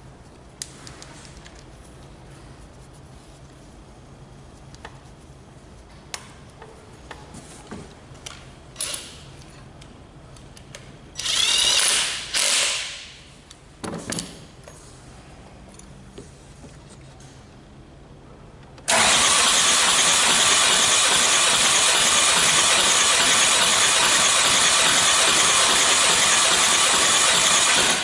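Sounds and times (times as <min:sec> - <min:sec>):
loud mechanical burst: 0:18.9 - 0:28.0.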